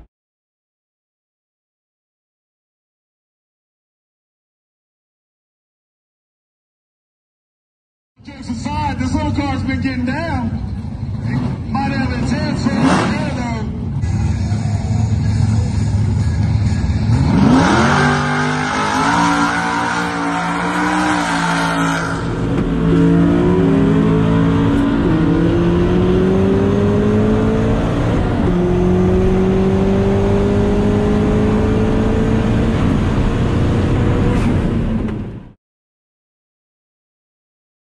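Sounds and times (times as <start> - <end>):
race cars accelerating: 8.6 - 35.4
car engine revving in cabin: 17.1 - 35.5.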